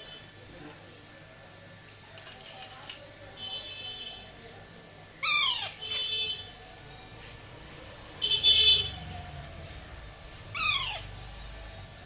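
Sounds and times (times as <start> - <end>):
parakeet chick calling: 5.2 - 5.8, 10.5 - 11.1.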